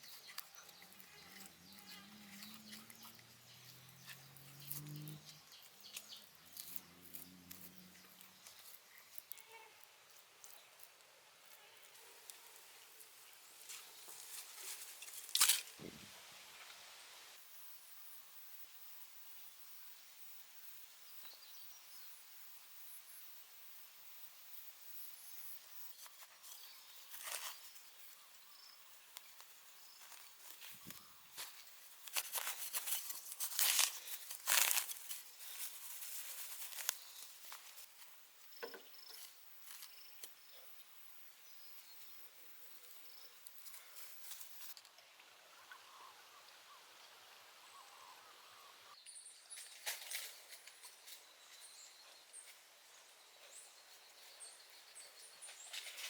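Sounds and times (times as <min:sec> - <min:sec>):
faint outdoor noise: 0:00.0 - 0:56.0
rustling and scraping: 0:26.0 - 0:28.2, 0:29.2 - 0:38.2.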